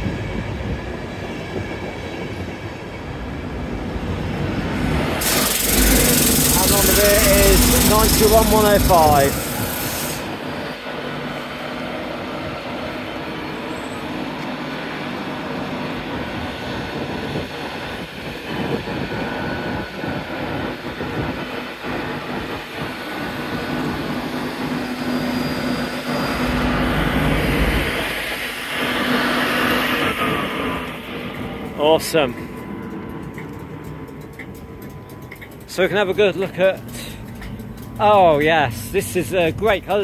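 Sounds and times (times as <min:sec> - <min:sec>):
train wheels rumbling on rail: 0:00.0 - 0:40.0
wheel clicks: 0:05.2 - 0:10.3, 0:31.3 - 0:40.0.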